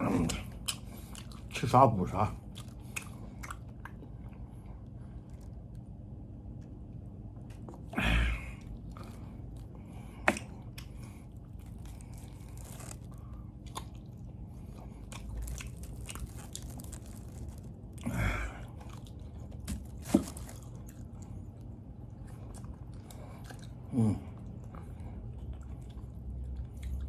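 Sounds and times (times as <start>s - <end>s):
person chewing with wet mouth clicks: 0.2s - 1.5s, 2.5s - 4.4s, 13.6s - 16.6s.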